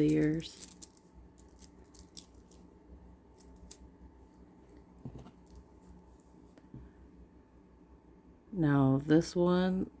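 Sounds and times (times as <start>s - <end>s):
plastic beads clicking: 0.0s - 2.6s.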